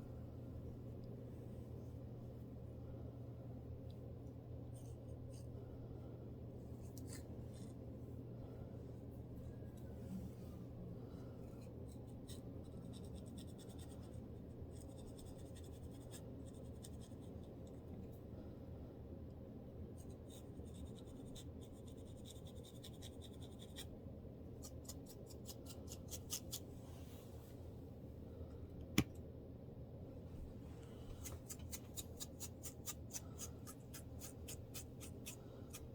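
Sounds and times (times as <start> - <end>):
low steady hum: 0.0 - 35.9
fingers scratching scalp: 24.6 - 26.7, 31.2 - 35.9.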